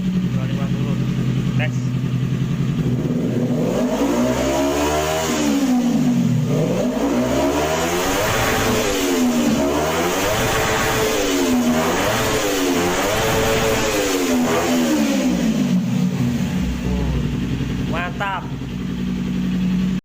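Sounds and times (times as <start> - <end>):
engine revving through racing exhaust: 2.7 - 18.6.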